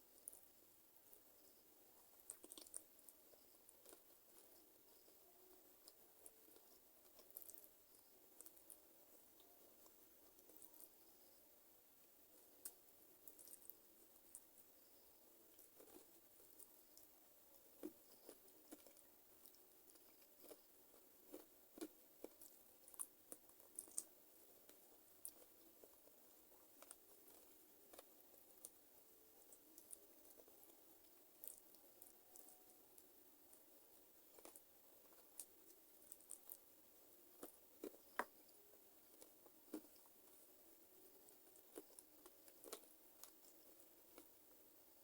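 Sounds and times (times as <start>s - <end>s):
chewing mouth clicks and smacks: 2.2s - 2.9s, 17.8s - 24.1s.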